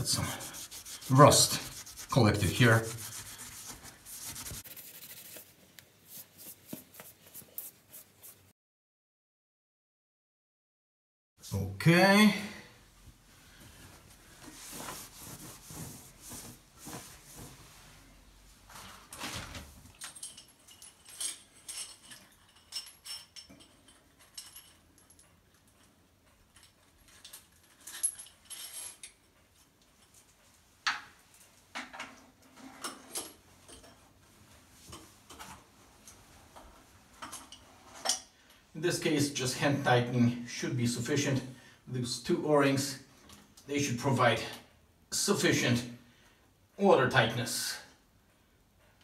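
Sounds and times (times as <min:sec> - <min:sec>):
towel rubbing ceramic basin: 0:00.0 - 0:08.5, 0:14.4 - 0:18.1
metal hoses clinking and rattling: 0:19.1 - 0:30.2.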